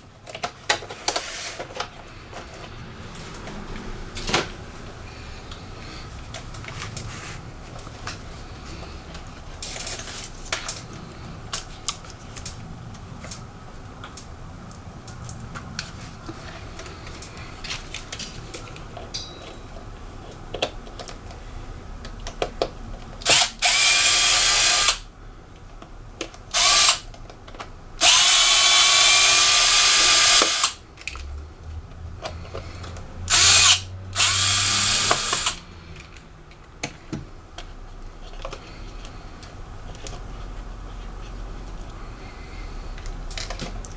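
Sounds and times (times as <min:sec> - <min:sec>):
parts being handled clicking: 0:07.8 - 0:40.3, 0:42.9 - 0:43.9
electric screwdriver whirring: 0:23.2 - 0:25.1, 0:26.5 - 0:27.1, 0:28.0 - 0:30.8, 0:33.3 - 0:35.6.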